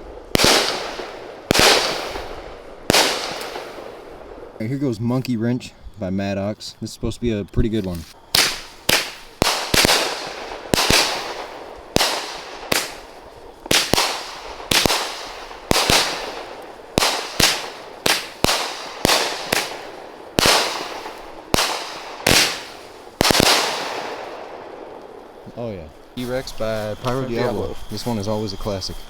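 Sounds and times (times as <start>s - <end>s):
firework bangs: 0.0s - 4.6s, 8.1s - 25.5s.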